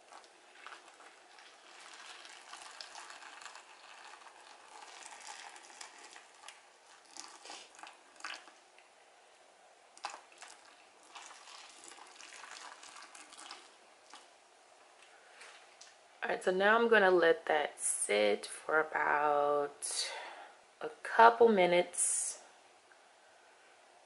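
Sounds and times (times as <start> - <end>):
water hissing with small crackles: 0.0 - 9.0, 9.9 - 16.0.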